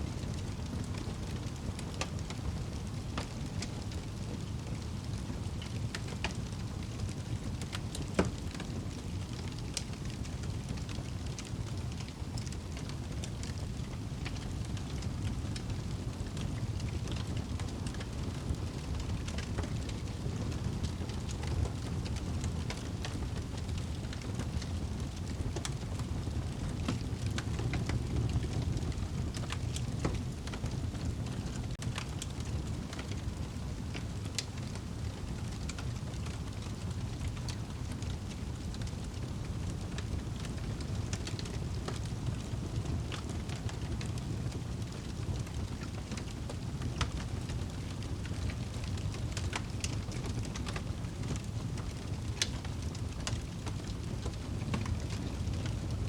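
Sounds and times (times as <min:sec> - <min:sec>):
fire flames rumbling: 0:00.1 - 0:56.0
fire crackling and popping: 0:00.2 - 0:56.0.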